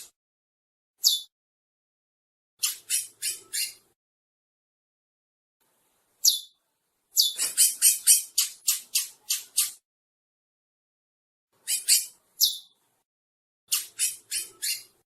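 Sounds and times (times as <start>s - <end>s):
finch singing: 1.0s - 1.3s, 2.6s - 3.9s, 6.2s - 6.6s, 7.2s - 9.8s, 11.6s - 12.8s, 13.7s - 15.0s.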